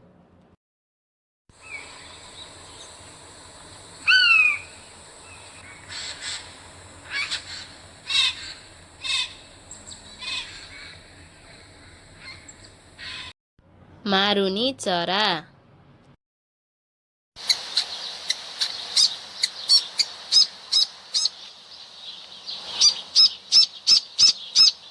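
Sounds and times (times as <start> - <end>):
steady high hiss: 1.6 - 13.1, 17.4 - 24.9
bird fluting call: 4.0 - 13.3, 17.4 - 21.4, 22.0 - 24.9.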